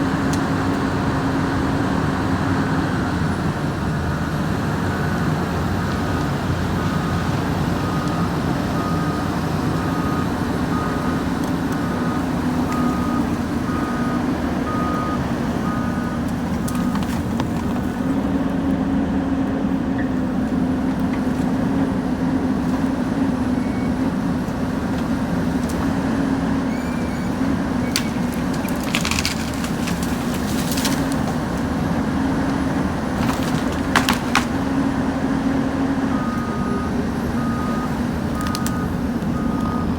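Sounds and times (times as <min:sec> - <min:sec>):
heavy machinery running: 0:00.0 - 0:39.9
backup alarm beeping: 0:06.9 - 0:17.0.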